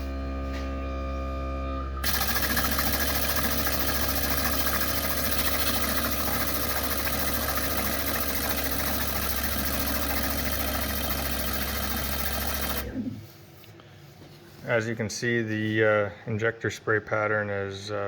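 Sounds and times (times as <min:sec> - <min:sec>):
low electrical hum: 0:00.0 - 0:10.7
pulsing fuel injectors buzzing: 0:02.0 - 0:13.2.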